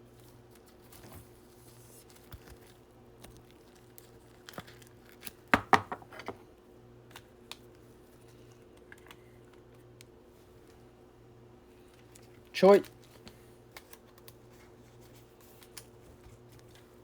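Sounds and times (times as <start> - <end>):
cards clicking and rustling: 11.9 - 16.9.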